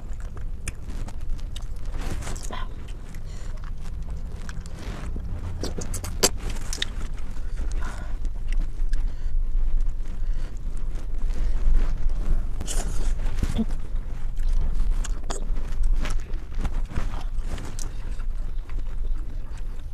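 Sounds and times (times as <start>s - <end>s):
chewing and slurping: 0.0s - 19.9s.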